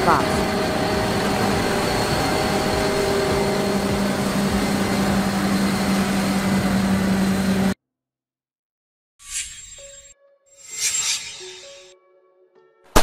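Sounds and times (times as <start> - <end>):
harvester engine humming: 0.0 - 7.7
machinery noise: 0.0 - 7.8, 9.3 - 11.9.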